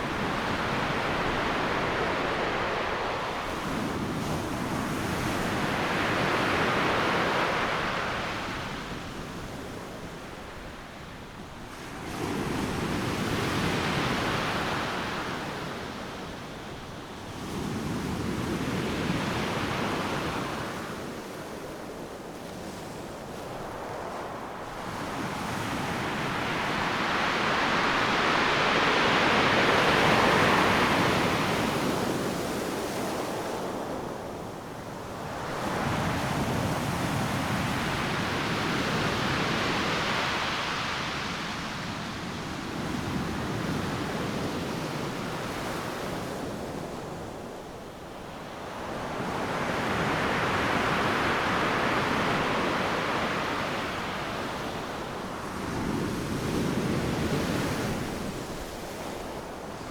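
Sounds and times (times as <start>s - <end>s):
ocean waves breaking: 24.4s - 33.8s.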